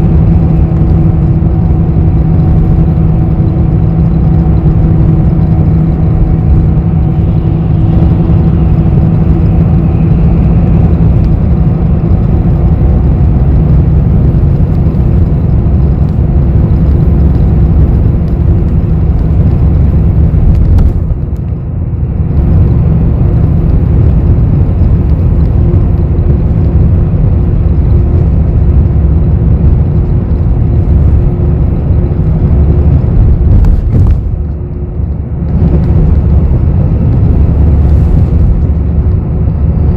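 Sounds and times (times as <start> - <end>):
bus engine and road rumble: 0.0 - 39.9.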